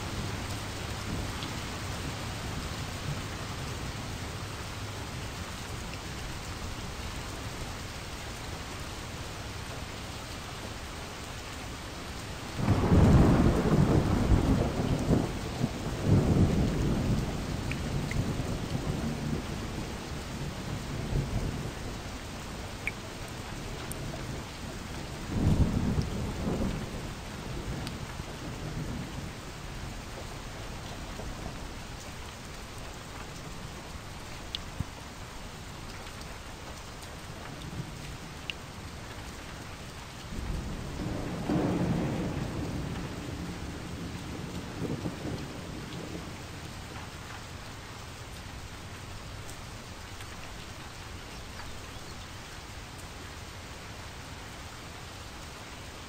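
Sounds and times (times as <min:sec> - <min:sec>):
steady rain: 0:00.0 - 0:56.0
rolling thunder: 0:12.6 - 0:19.7, 0:40.3 - 0:46.3.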